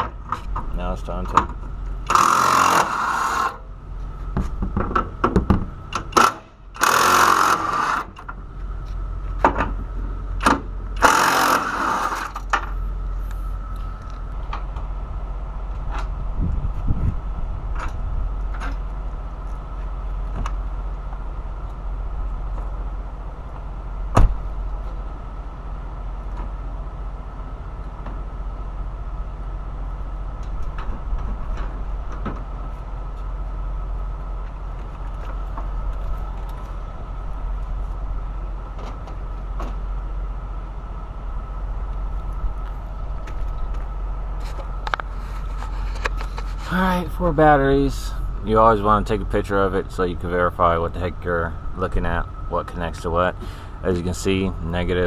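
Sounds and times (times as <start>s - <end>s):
low hum: 0.0s - 55.0s.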